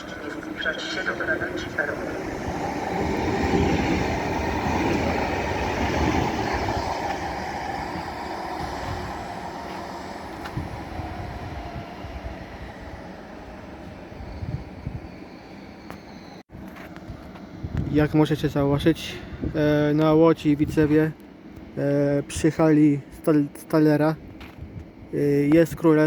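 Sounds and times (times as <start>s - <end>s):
train rolling: 0.0s - 19.0s.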